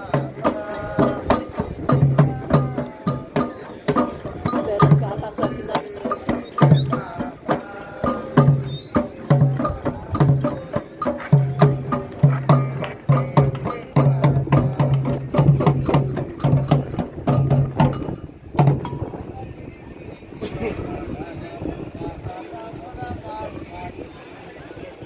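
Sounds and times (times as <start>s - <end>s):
hand drums playing fast rhythm: 0.0s - 19.3s
deep booming drum tones: 0.0s - 19.4s.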